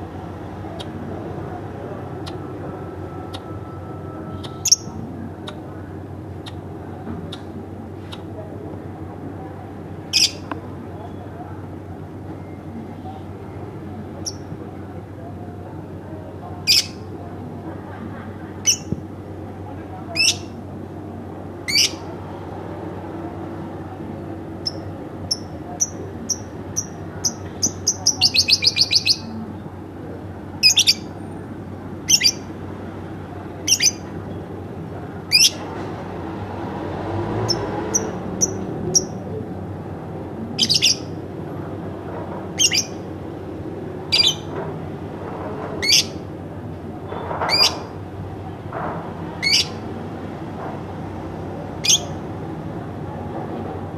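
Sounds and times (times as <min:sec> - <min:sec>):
lovebird chirping: 0:04.3 - 0:05.6, 0:24.6 - 0:29.3, 0:30.6 - 0:31.1, 0:32.0 - 0:32.5, 0:33.6 - 0:34.0, 0:40.6 - 0:41.1, 0:42.6 - 0:43.0, 0:51.8 - 0:52.2.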